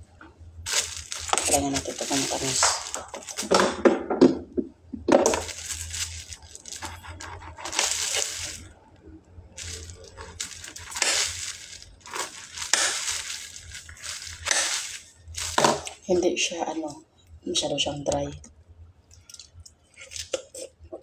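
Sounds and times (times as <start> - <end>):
person chewing fruit: 5.4 - 8.7.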